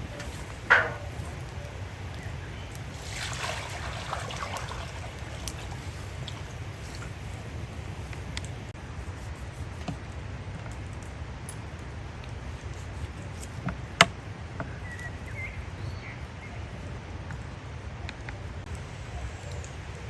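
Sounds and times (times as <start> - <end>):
bird chirping: 0.0 - 3.0, 14.6 - 16.8
campfire crackling: 0.0 - 20.0.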